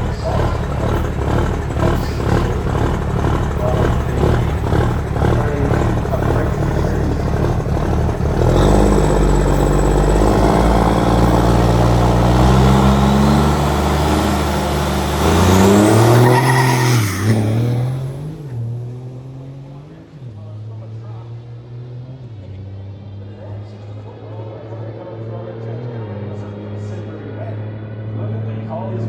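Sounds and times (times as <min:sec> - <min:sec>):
drag racing truck engine: 0:00.0 - 0:29.0.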